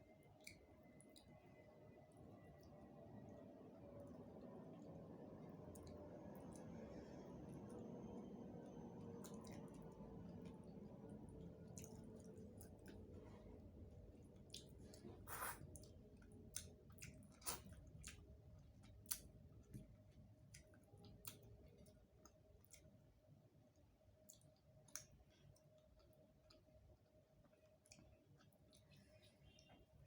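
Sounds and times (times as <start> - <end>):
faint steady hum: 0.0 - 30.0
soft chewing: 0.0 - 30.0.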